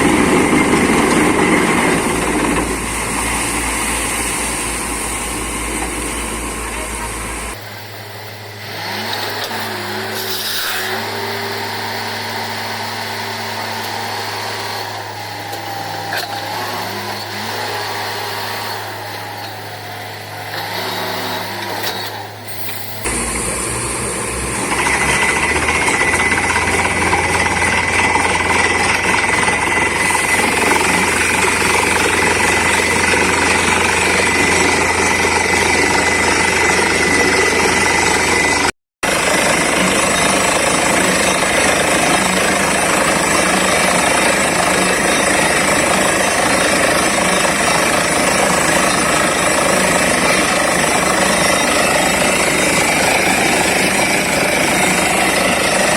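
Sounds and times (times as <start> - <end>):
air compressor running: 0.0 - 55.9
drilling rig running: 0.0 - 55.9
hammer pounding: 24.2 - 55.9.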